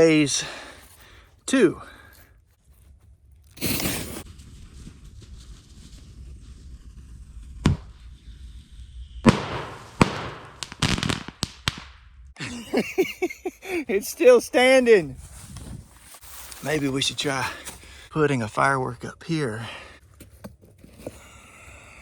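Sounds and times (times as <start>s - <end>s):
firework whoosh: 3.6s - 12.0s
firecracker bangs and pops: 7.0s - 8.3s, 9.2s - 12.4s
sharp firework crack: 7.5s - 12.3s.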